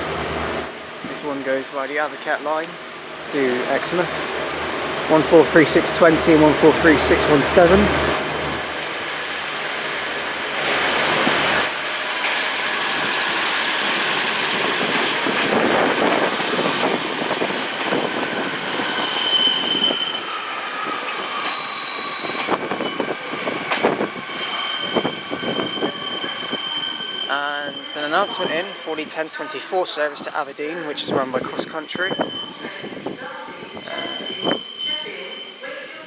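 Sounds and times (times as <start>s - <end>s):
diesel train engine drone: 0.0s - 33.1s
high-pitched wheel squeal: 17.9s - 31.0s, 33.8s - 35.7s.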